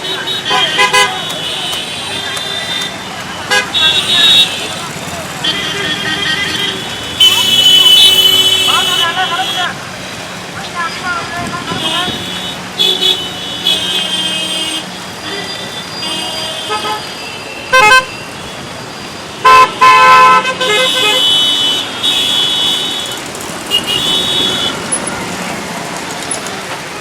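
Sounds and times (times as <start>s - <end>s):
vehicle horns honking: 0.0s - 9.8s, 11.5s - 18.7s, 19.3s - 25.8s
road traffic: 0.0s - 27.0s.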